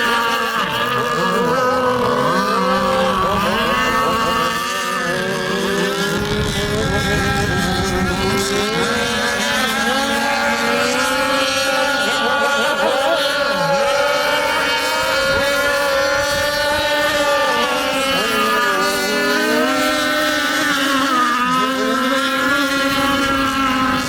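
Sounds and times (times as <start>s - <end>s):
speedboat engine running: 0.0s - 24.0s.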